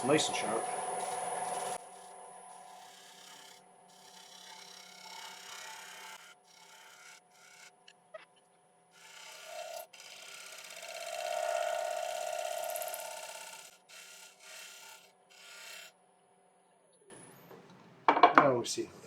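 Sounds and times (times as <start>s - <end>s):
scraper cutting spinning wood: 1.0s - 7.8s, 9.0s - 15.9s.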